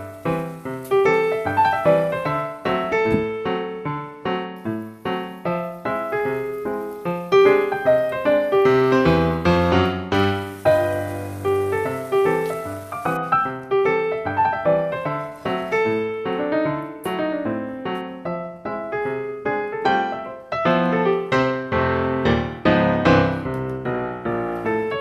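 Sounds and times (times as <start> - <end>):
solo piano melody: 0.0 - 25.0.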